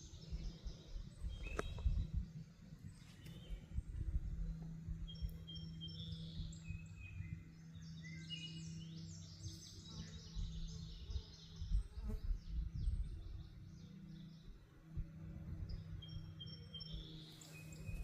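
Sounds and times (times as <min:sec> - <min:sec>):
low rumble: 0:00.0 - 0:09.3
birds singing: 0:00.0 - 0:18.0.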